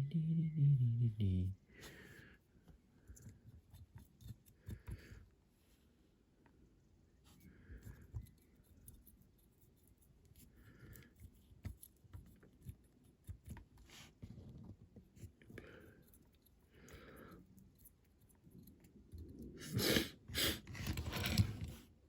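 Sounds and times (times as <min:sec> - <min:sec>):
person sniffing: 0:19.6 - 0:20.7.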